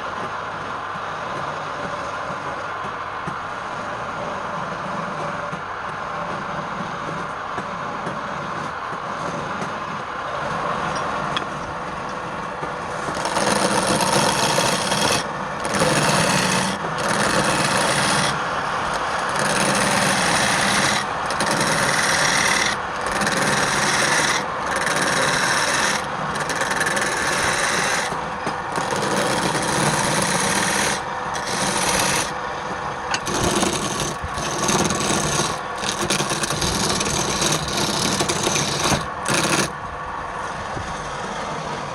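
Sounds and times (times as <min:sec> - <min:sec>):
tool scraping spinning wood: 0:11.0 - 0:39.8
wood lathe running: 0:12.8 - 0:39.8.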